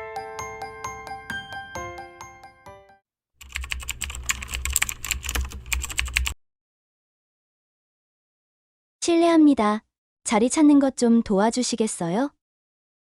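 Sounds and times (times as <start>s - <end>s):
glockenspiel jingle: 0.0s - 3.0s
computer keyboard typing: 3.4s - 6.4s.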